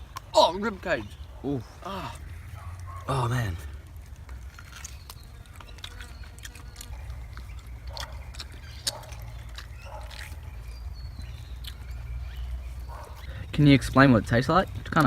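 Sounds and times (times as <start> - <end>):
person chewing meat: 4.4 - 12.0.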